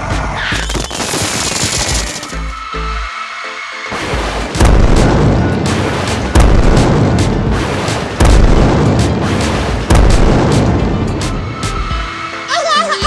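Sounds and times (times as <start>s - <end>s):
background music: 0.0s - 13.0s
heavy booms: 4.0s - 12.1s.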